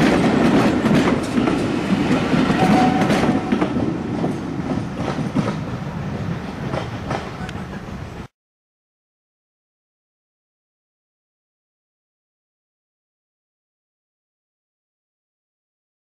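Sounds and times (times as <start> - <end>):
train wheels clattering over rail joints: 0.0 - 7.9.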